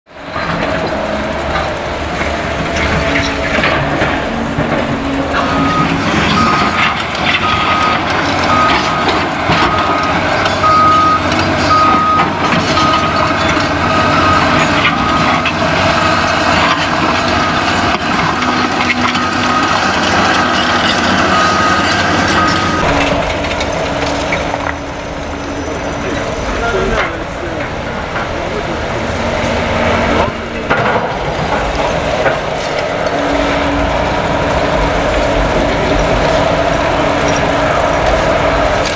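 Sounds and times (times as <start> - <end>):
diesel engines running: 0.1 - 38.9
back-up alarm beeping: 5.4 - 13.2, 13.8 - 15.4, 21.2 - 23.2.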